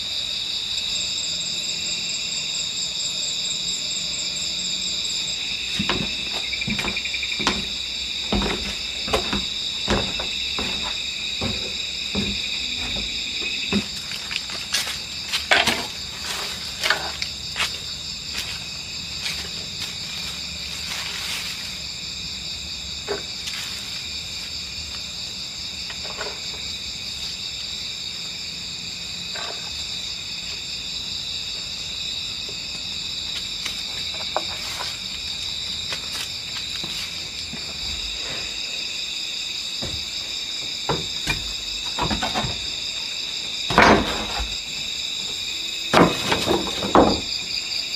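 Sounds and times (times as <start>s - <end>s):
crickets and insects chirping: 0.0s - 47.9s
knocks and clicks: 5.8s - 14.0s.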